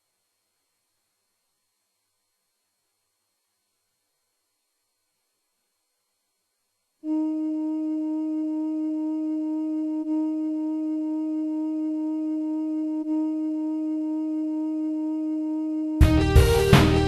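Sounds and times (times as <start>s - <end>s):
synthesized flute-like note: 7.0s - 17.0s.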